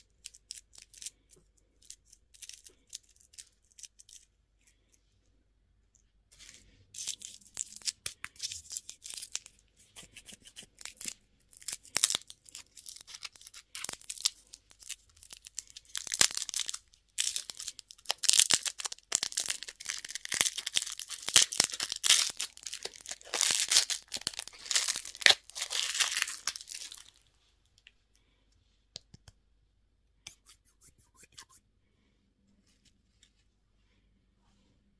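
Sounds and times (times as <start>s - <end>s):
plastic wrapper crinkling: 10.2s - 27.2s.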